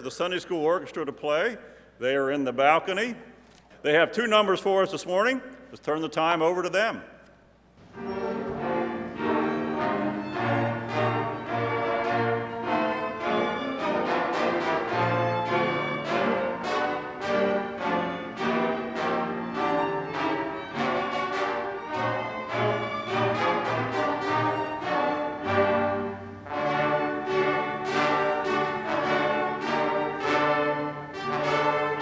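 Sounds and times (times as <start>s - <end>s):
small orchestra with violins and cello: 7.8s - 32.0s.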